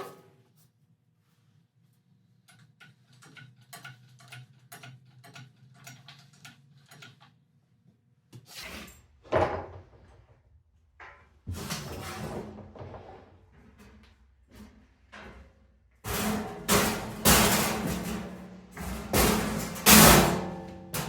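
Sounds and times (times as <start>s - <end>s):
metal and cardboard parts clicking: 2.4s - 7.4s
knock and scrape: 11.0s - 13.8s.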